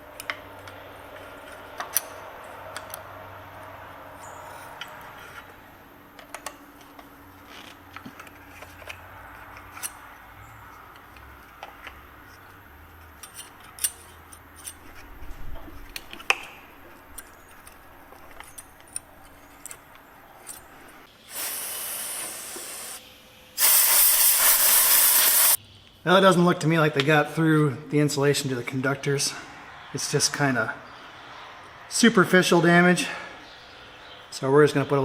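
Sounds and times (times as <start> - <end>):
metallic clicks of tools: 13.0 - 21.0
hiss of spray or air: 21.2 - 23.0, 23.6 - 25.6.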